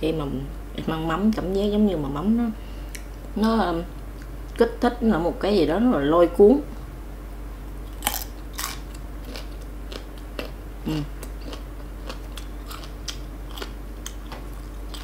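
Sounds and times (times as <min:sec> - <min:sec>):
crunchy chewing: 0:07.8 - 0:15.0.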